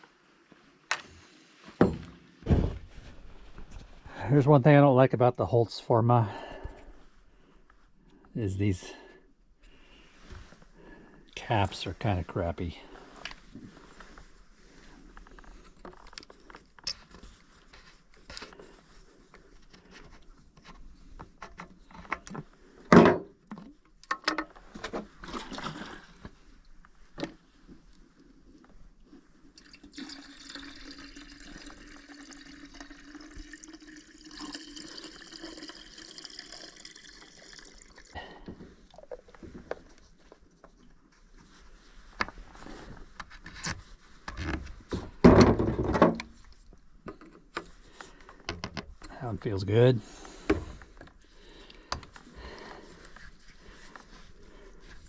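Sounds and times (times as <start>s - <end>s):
liquid pouring into tank: 29.6s - 38.4s.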